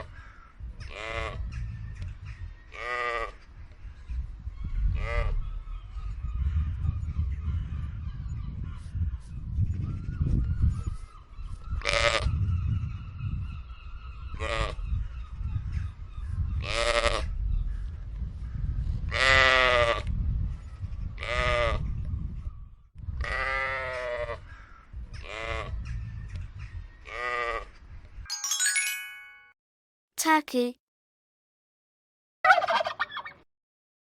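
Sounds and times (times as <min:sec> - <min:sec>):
short chiming jingle: 0:28.3 - 0:29.6.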